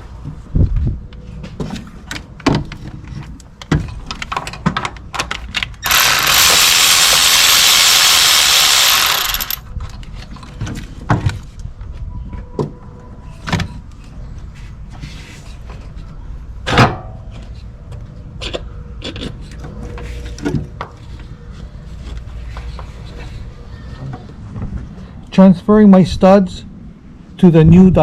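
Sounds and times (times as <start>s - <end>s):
loud steady hiss: 5.8s - 9.6s
ratchet clicking: 5.8s - 9.6s.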